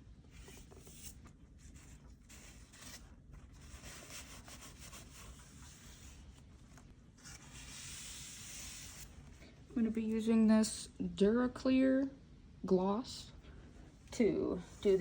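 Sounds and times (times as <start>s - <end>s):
hands rubbing craft materials: 0.4s - 9.3s.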